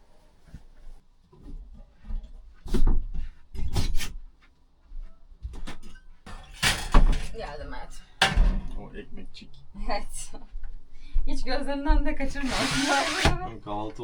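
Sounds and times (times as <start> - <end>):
objects knocking and rubbing: 12.3 - 13.4.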